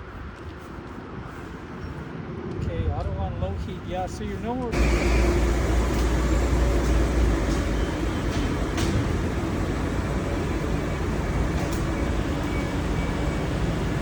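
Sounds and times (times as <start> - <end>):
road noise from wet street: 4.6 - 14.0
passing vehicle rumble: 4.8 - 14.0.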